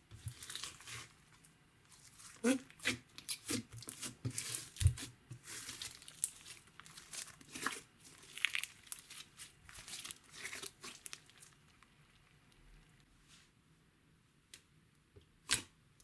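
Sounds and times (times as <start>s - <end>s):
slime squeezed by hand crackling: 5.5s - 11.5s.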